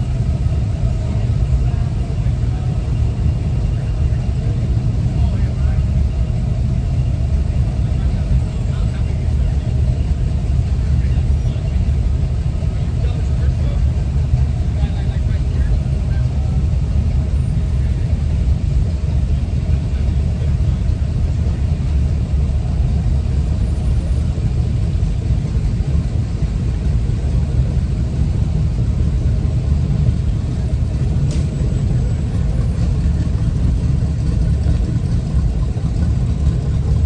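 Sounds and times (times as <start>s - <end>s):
low rumble: 0.0s - 37.0s.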